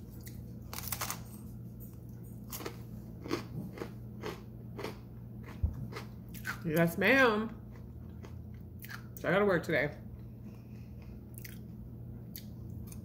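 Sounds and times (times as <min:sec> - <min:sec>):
crunchy food being chewed: 0:01.9 - 0:06.6, 0:07.7 - 0:09.2, 0:10.5 - 0:13.0.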